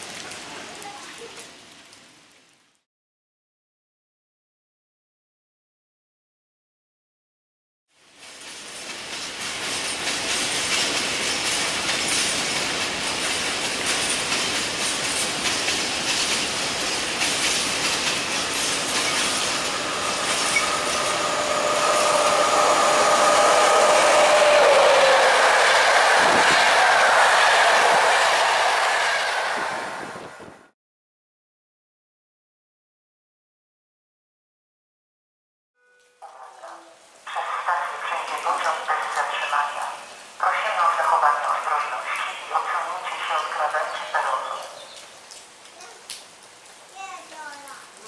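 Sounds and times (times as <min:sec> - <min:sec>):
train wheels clattering on track: 0:08.2 - 0:30.1
whining tone: 0:19.1 - 0:30.6.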